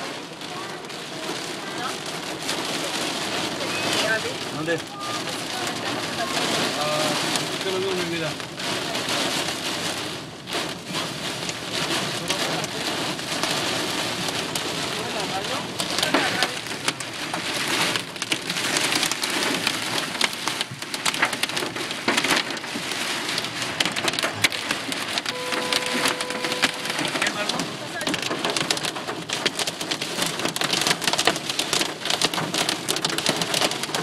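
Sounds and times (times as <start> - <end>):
heavy rain on car: 0.0 - 34.0
raindrop impacts ticking: 0.0 - 34.0
short steady tone: 25.3 - 27.2.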